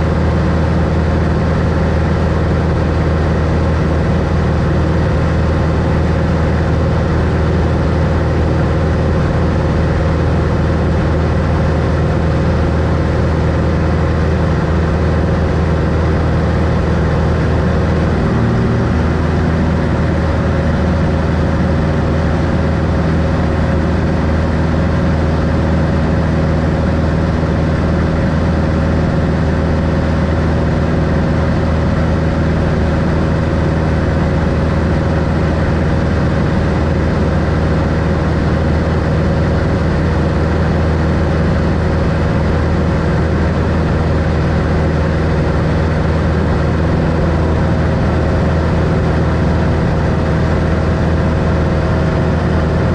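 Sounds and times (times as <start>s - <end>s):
propeller plane engine running: 0.0s - 52.9s.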